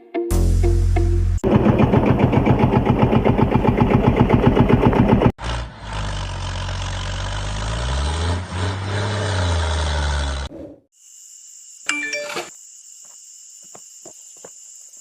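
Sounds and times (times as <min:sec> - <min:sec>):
small engine chugging: 0:01.4 - 0:05.3
steady motor rising in pitch: 0:01.4 - 0:10.5.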